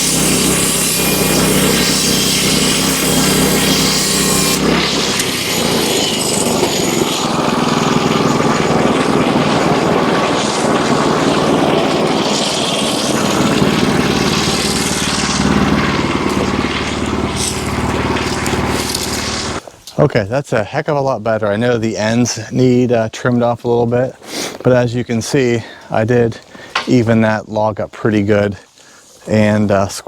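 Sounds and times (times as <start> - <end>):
bandsaw blade hissing: 0.0 - 19.6
sawmill engine drone: 0.0 - 19.6.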